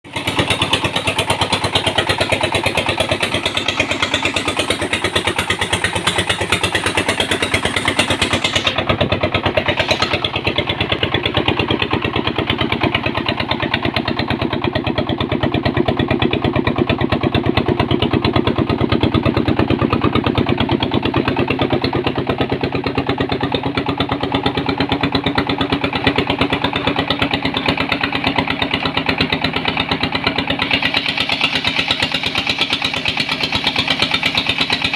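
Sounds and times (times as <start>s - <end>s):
press machine engine running: 6.8s - 13.1s.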